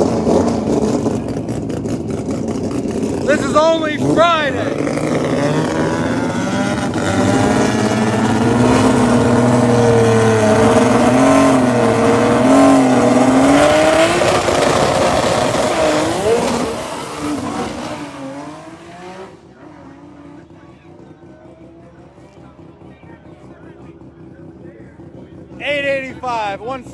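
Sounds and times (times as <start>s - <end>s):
drag racing car engine: 0.0s - 26.9s.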